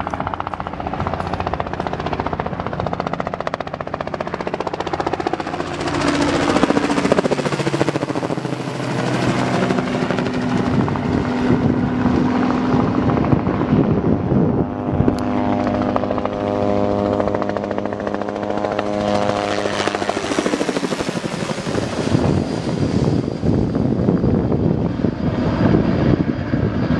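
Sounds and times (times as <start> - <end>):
helicopter engine drone: 0.0 - 26.9.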